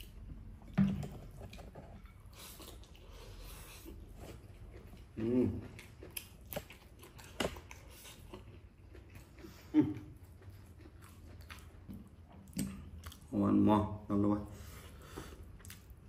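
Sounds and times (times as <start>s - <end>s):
man chewing and lip smacking: 0.0s - 13.4s, 15.2s - 16.0s.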